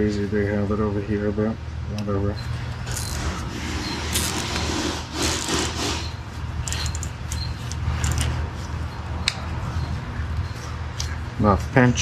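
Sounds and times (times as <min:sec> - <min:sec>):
steady low hum: 0:00.0 - 0:12.0
hands rasping and rubbing parts: 0:02.9 - 0:11.2.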